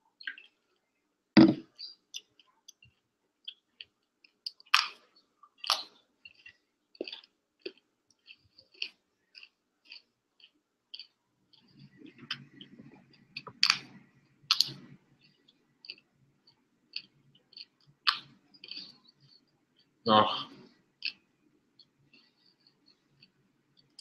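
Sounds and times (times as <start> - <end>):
plastic bottle set down on table: 1.4 - 1.6
crunchy chewing: 1.8 - 24.0.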